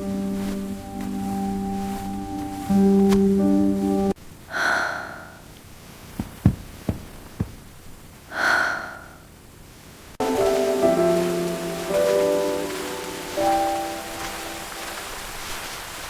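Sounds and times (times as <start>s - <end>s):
music: 0.0s - 4.2s, 10.2s - 15.0s
breathy sighs: 4.5s - 5.5s, 8.3s - 9.2s.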